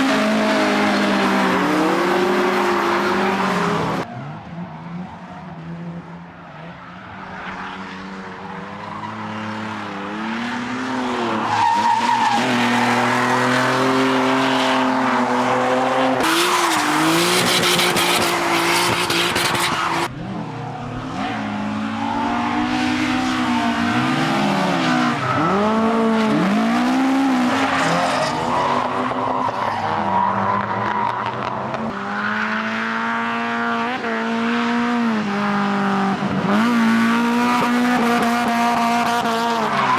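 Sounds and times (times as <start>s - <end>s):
car engines revving: 0.0s - 39.9s
harsh tyre skid: 8.8s - 32.6s.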